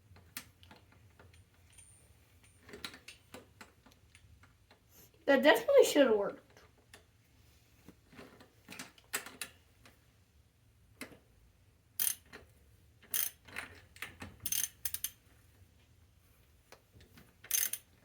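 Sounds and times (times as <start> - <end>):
ratchet wrench clicking: 12.0 - 12.4, 13.1 - 13.7, 14.4 - 15.2, 17.5 - 18.0.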